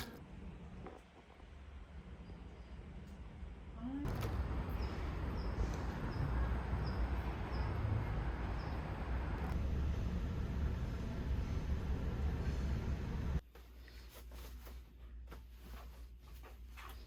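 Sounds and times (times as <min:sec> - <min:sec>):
outdoor rumble and hiss: 0:00.0 - 0:17.0.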